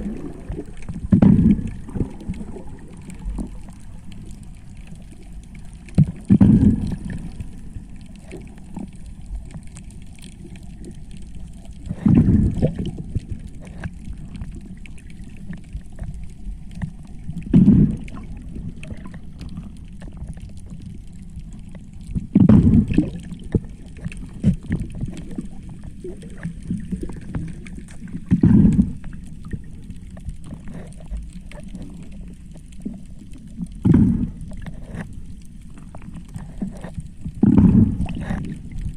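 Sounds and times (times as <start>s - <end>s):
diver's exhaled air bubbling: 0.0s - 4.0s, 5.1s - 8.6s, 11.6s - 14.4s, 17.4s - 19.8s, 22.2s - 29.8s, 33.7s - 35.2s, 36.0s - 38.9s
low underwater rumble: 0.0s - 38.9s.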